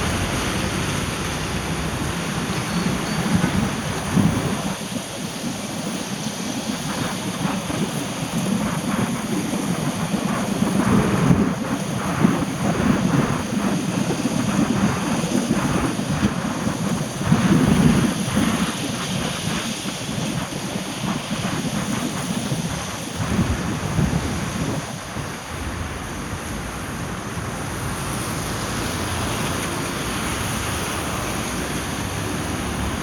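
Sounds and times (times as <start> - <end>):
steady rain falling: 0.0 - 5.0, 23.2 - 33.0
wind noise on microphone: 0.0 - 33.0.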